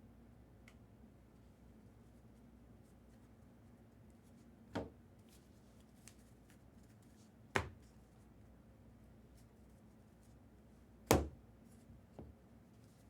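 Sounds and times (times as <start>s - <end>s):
sharp thump on table: 11.1s - 11.4s.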